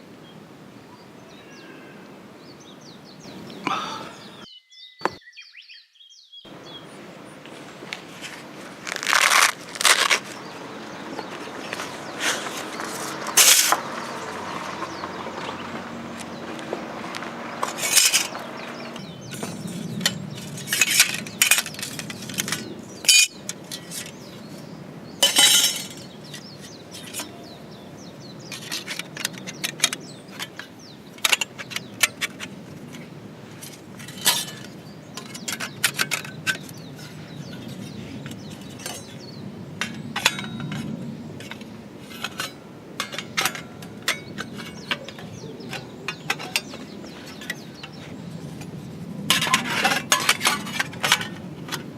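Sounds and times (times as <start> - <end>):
rustling: 7.5 - 24.6
cookware clinking and knocking: 19.3 - 24.1, 25.2 - 26.4.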